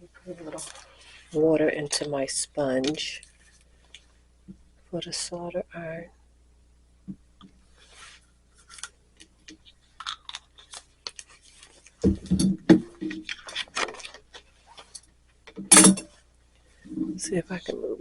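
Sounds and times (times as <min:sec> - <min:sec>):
tools handled on workbench: 0:12.0 - 0:16.2.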